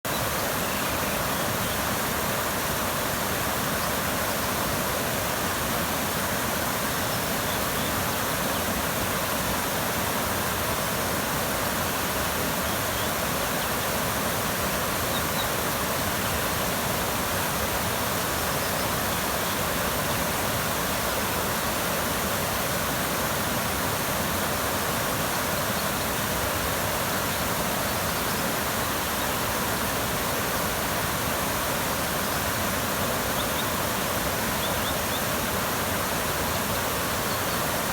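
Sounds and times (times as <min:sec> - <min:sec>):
creek water rushing: 0:00.0 - 0:37.9
faint high bird chirps: 0:33.3 - 0:35.5.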